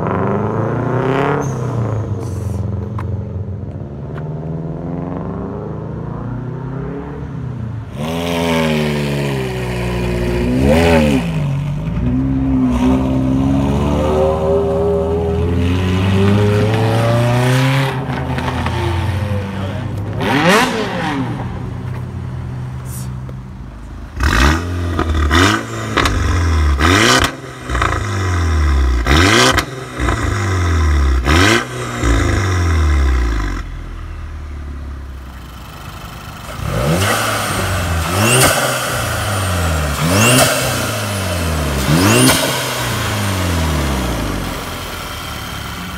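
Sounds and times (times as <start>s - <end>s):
car engine revving in blips: 7.9s - 22.1s, 24.2s - 34.0s, 36.4s - 45.9s.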